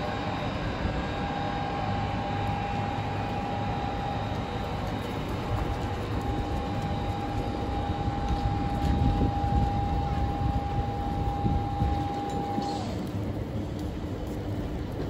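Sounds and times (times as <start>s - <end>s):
constant equipment whine: 0.0s - 15.0s
train power car humming: 0.0s - 15.0s.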